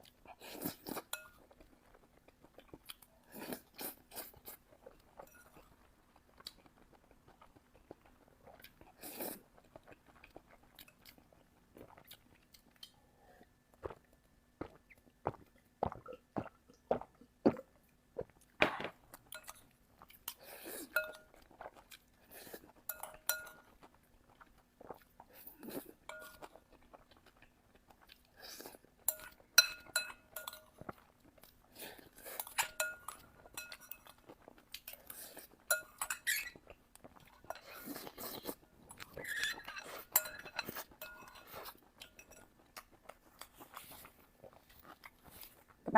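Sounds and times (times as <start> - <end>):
utensil clinking on bowl: 22.9 - 23.6, 29.1 - 30.8, 32.4 - 34.1, 39.3 - 42.5.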